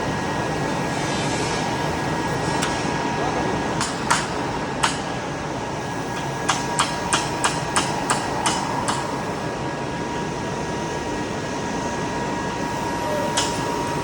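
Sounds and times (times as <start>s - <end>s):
machine hum with whine: 0.0s - 14.0s.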